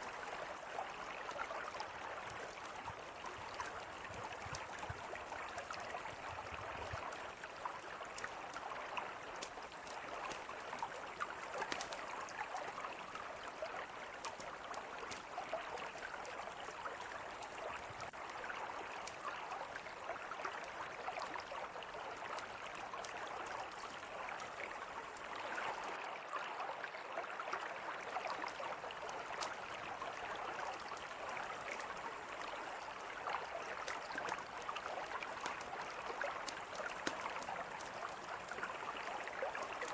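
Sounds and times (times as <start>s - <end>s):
campfire popping and crackling: 1.6s - 12.9s, 14.0s - 18.1s, 23.0s - 25.7s, 33.6s - 39.9s.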